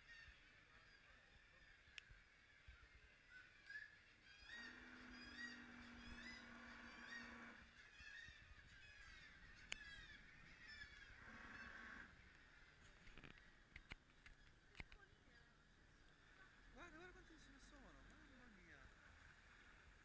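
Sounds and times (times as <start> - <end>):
seabird colony calling: 0.0 - 13.6
low steady hum: 0.0 - 20.0.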